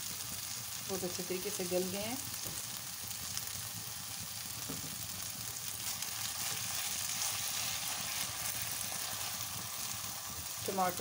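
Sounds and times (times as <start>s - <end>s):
sauce sizzling in a frying pan: 0.0s - 11.0s
spatula stirring in a pan: 5.5s - 11.0s.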